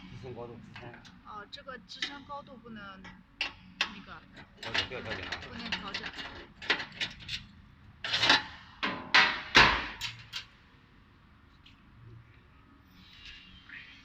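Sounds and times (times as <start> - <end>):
conveyor parts scraping and rubbing: 4.3 - 8.7.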